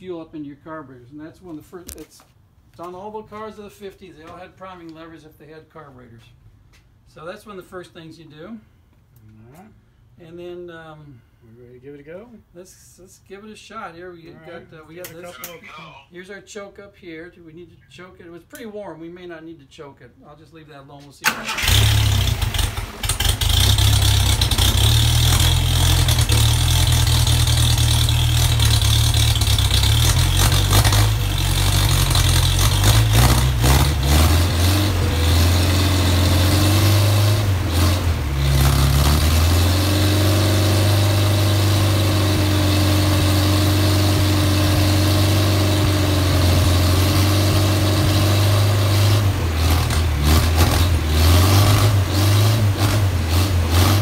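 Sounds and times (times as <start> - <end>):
car engine starting and running: 21.2 - 54.0.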